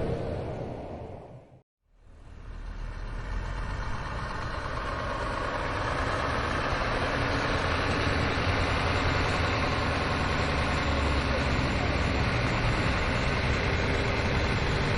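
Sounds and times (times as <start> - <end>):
heavy diesel engine running: 2.0 - 14.9.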